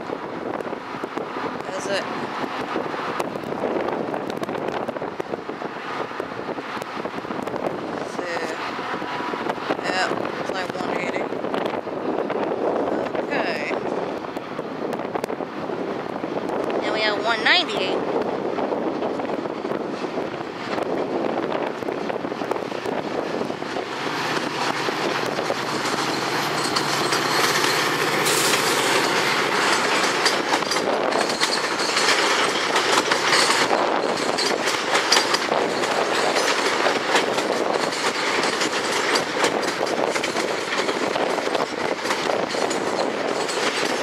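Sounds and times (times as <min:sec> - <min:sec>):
train cars rumbling: 0:00.0 - 0:44.0
wheels clicking over rail joints: 0:18.1 - 0:44.0.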